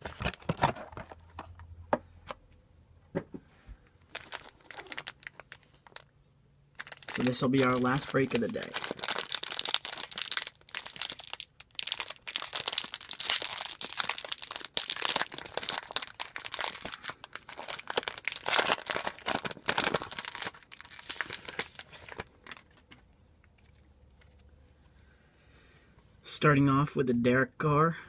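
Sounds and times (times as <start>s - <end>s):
packaging crinkling and tearing: 4.0s - 6.1s, 6.7s - 23.0s.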